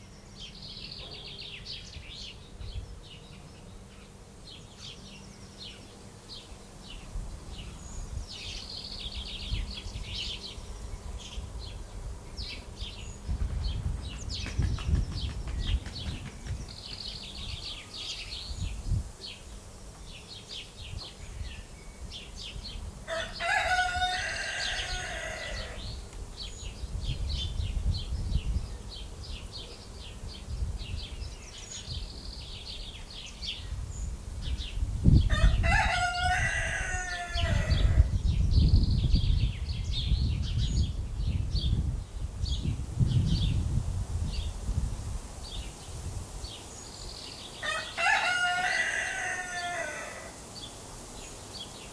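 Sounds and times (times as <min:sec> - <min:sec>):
small birds chirping: 0:00.0 - 0:22.9
rooster crowing: 0:23.1 - 0:25.8, 0:35.3 - 0:38.1, 0:47.6 - 0:50.4.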